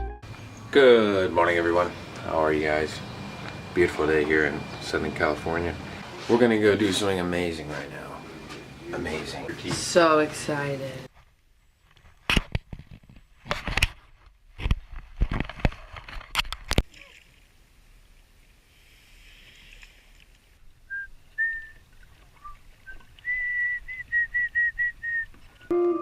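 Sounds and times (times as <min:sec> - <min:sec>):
high whistled notes: 0:23.2 - 0:26.0.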